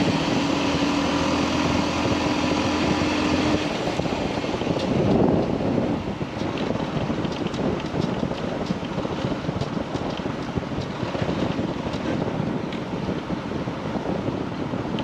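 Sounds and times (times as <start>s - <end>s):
motorcycle road and engine noise: 0.0s - 15.0s
wind buffeting microphone: 0.0s - 15.0s.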